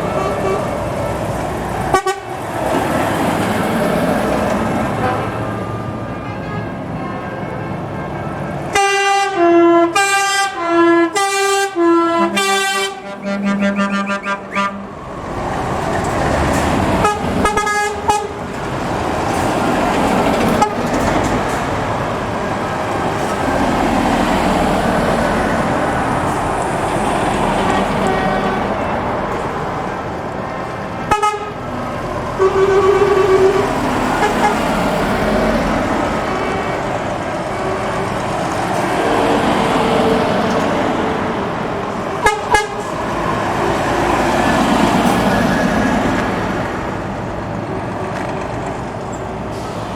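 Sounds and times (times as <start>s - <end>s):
truck driving past: 0.0s - 8.8s, 9.7s - 49.9s
musical air horn: 1.9s - 2.4s, 5.0s - 15.0s, 17.0s - 18.4s, 31.1s - 31.6s, 32.4s - 34.8s, 42.2s - 42.9s.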